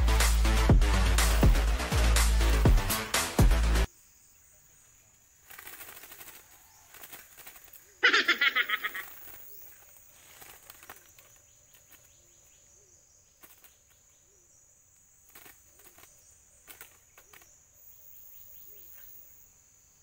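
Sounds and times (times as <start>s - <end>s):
insects chirring: 3.8s - 20.0s
hands rustling at a wire cage: 5.4s - 7.9s, 8.6s - 12.1s.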